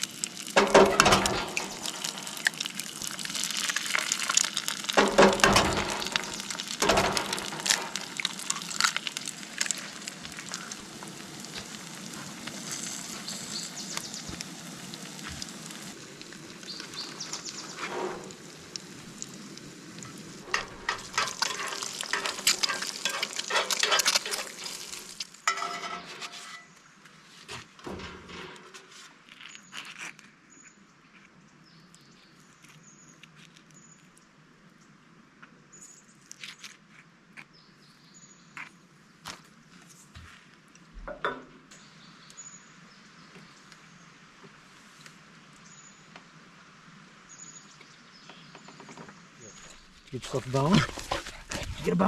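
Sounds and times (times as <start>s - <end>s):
crackling and crunching: 0.0s - 26.8s, 27.5s - 30.4s, 36.2s - 37.5s
bird chirping: 13.1s - 14.4s, 16.6s - 17.8s.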